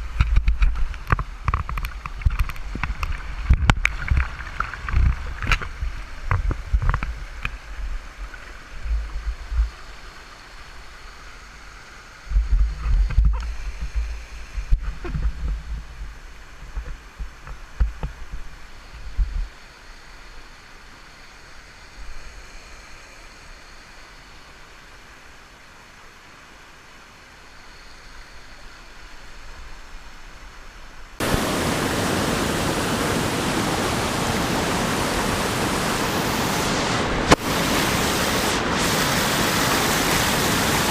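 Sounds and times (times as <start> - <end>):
muffled rushing river water: 0.0 - 40.9
loud rush of water: 31.1 - 40.9.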